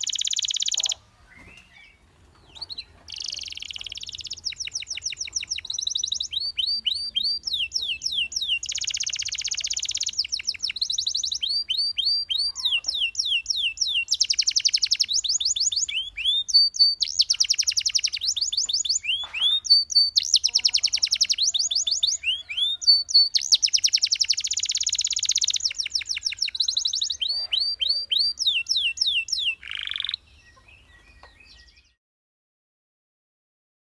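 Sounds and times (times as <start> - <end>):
canary singing: 0.0 - 32.0.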